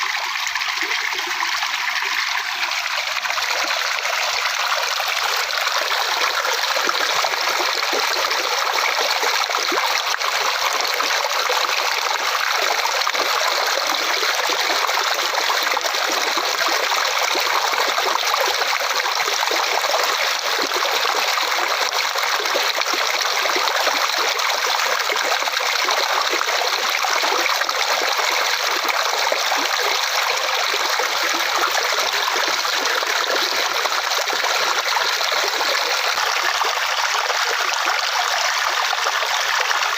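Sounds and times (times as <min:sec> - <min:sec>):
flowing water trickling: 0:00.0 - 0:39.9.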